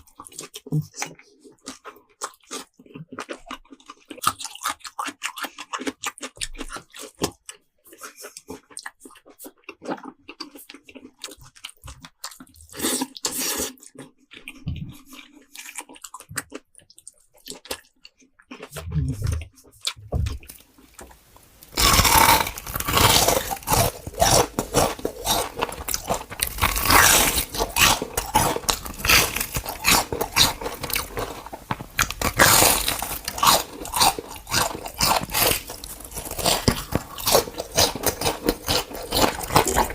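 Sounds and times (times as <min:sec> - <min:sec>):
crunchy food chewing: 0:00.0 - 0:39.9
mouth sounds: 0:18.6 - 0:20.4.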